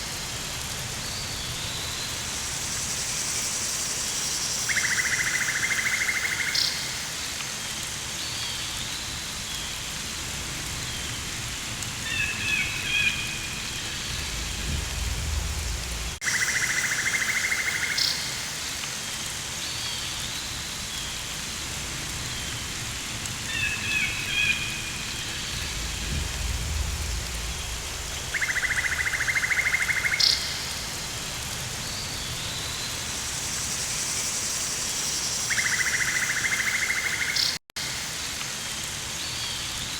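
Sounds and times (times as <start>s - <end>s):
rain-like hiss: 0.0s - 39.9s
low rumble: 14.0s - 16.2s, 25.4s - 28.3s.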